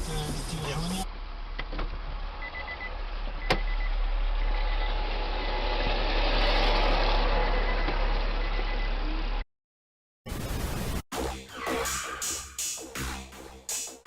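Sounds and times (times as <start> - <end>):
car road and engine noise: 0.0 - 9.4.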